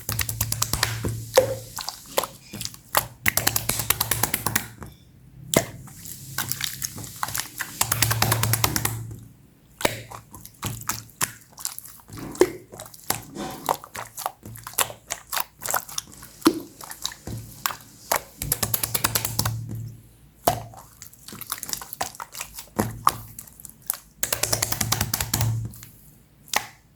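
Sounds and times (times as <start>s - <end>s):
fine slime crackles: 0.0s - 4.8s, 5.6s - 9.1s, 9.8s - 19.8s, 20.4s - 26.8s
slime squeezed by hand: 0.0s - 4.8s, 5.5s - 9.1s, 9.8s - 19.8s.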